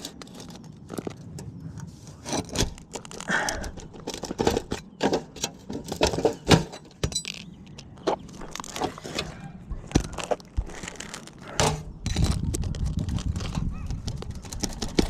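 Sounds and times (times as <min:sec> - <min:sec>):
tool scraping under roof shingles: 0:01.9 - 0:13.6.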